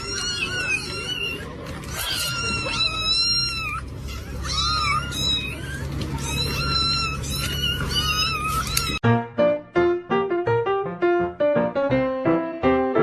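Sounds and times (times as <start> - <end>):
cat meowing: 0.0 - 9.0.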